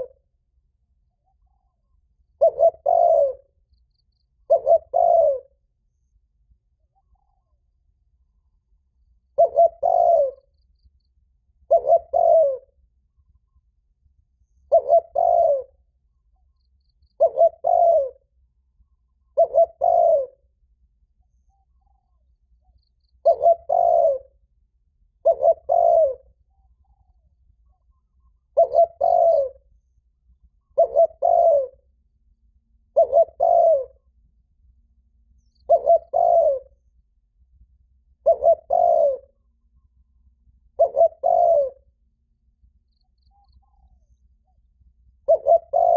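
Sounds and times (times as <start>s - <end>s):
dove cooing: 0.0s - 0.2s, 1.2s - 3.6s, 4.4s - 5.6s, 9.3s - 10.5s, 11.6s - 12.8s, 14.6s - 15.8s, 17.2s - 18.4s, 19.2s - 20.5s, 23.2s - 24.4s, 25.2s - 27.2s, 27.8s - 29.7s, 30.5s - 31.8s, 32.9s - 34.1s, 35.5s - 36.8s, 38.2s - 39.5s, 40.6s - 41.9s, 45.2s - 45.9s.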